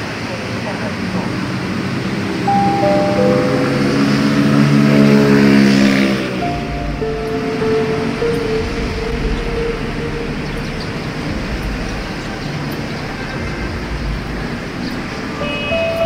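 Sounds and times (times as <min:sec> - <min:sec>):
rumble of passing vehicles: 0:00.0 - 0:16.0
held tones: 0:02.5 - 0:05.1, 0:06.4 - 0:12.7.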